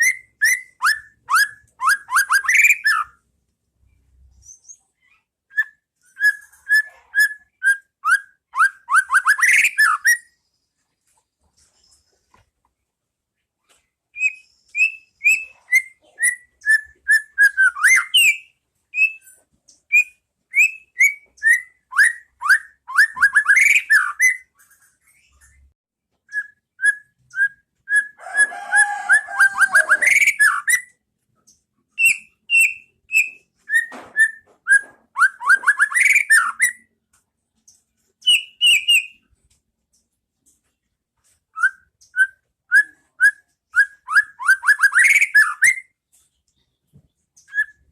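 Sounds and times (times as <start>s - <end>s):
bird singing whistled notes: 0.0s - 3.2s, 14.2s - 19.3s, 19.9s - 24.5s, 26.3s - 28.2s, 32.0s - 36.9s, 38.2s - 39.2s, 41.6s - 46.0s, 47.4s - 47.9s.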